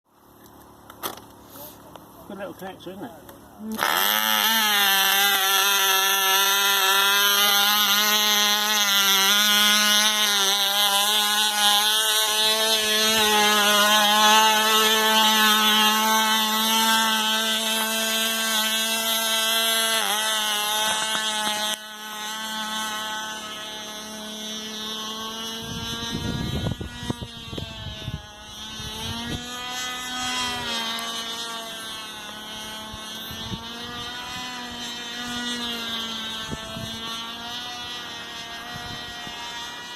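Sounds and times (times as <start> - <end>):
model engine high-pitched buzz: 0.1 - 39.9.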